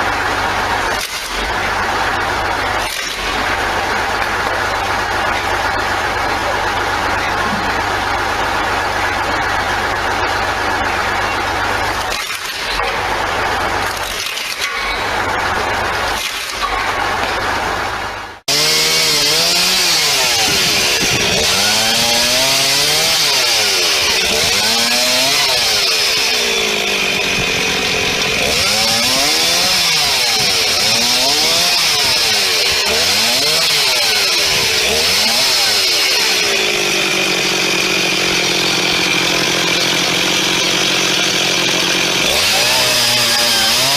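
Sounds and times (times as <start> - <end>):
motor running steadily: 0.0 - 42.9
small engine revving: 17.9 - 43.9.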